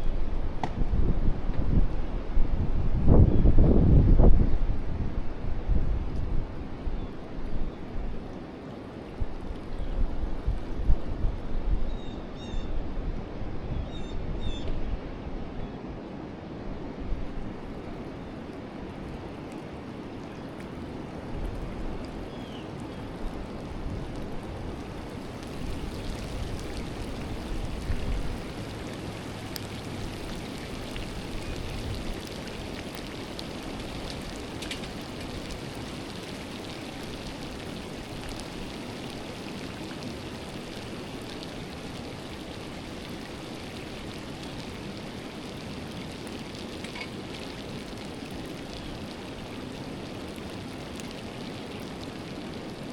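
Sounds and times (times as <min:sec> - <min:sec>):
river water rushing: 0:17.3 - 0:52.9.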